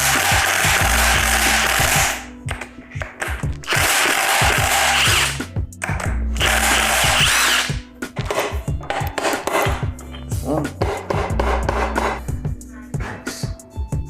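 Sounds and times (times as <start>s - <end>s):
power tool running: 0.0s - 2.2s, 3.7s - 5.4s, 6.4s - 7.8s
background music with beat: 0.0s - 14.0s
tools scraping and clicking: 1.8s - 12.2s.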